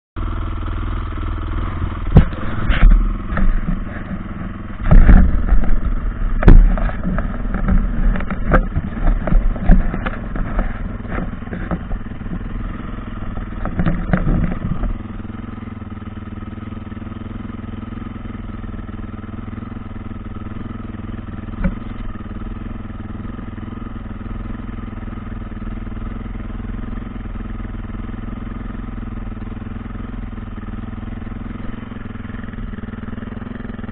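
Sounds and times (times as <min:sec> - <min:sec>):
dirt bike engine idling: 0:00.2 - 0:33.9
sharp knocks and clattering bangs: 0:02.0 - 0:15.0.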